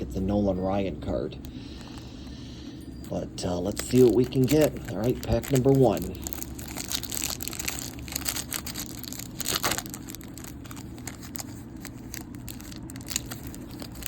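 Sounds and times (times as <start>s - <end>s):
plastic wrapper crinkling and tearing: 3.7s - 14.0s.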